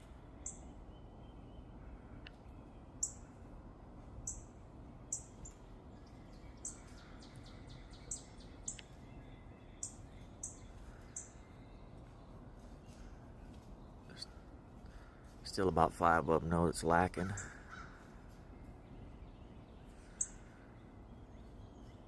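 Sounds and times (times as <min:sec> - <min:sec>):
low outdoor background: 0:00.0 - 0:22.0
small birds chirping: 0:00.0 - 0:22.0.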